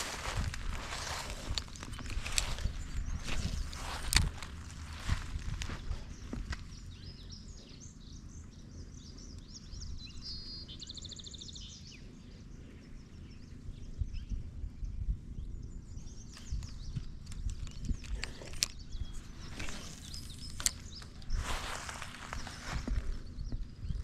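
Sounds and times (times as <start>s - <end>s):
wind rumble: 0.0s - 7.3s, 13.5s - 24.0s
birds chirping and calling: 0.0s - 14.6s, 15.6s - 24.0s.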